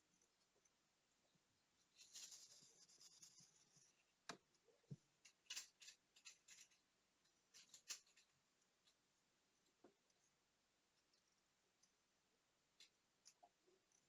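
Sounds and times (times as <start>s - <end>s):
small tools scraping: 1.9s - 3.9s
faint small clicks: 12.8s - 14.0s.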